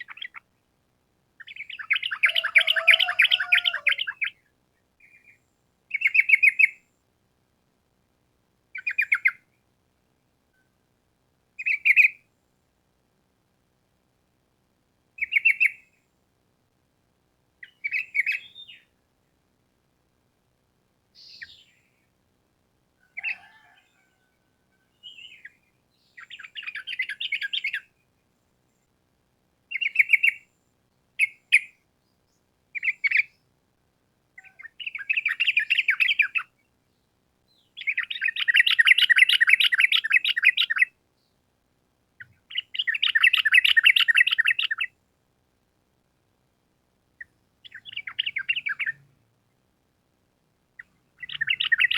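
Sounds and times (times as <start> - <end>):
bird chirps and trills: 0.0 - 0.4, 1.4 - 4.4, 25.0 - 27.9, 34.4 - 36.5, 37.6 - 40.9, 42.2 - 44.9, 47.6 - 49.1, 50.8 - 51.9.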